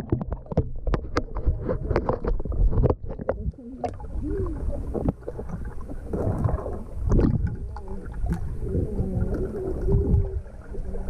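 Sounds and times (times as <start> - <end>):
pool water splashing: 3.2 - 11.0.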